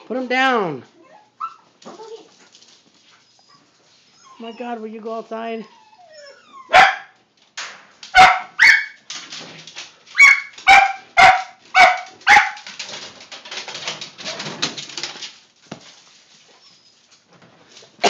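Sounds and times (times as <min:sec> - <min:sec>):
dog barking: 0:06.7 - 0:07.2, 0:08.1 - 0:09.0, 0:10.2 - 0:12.6
scuffling and rustling: 0:14.0 - 0:18.0.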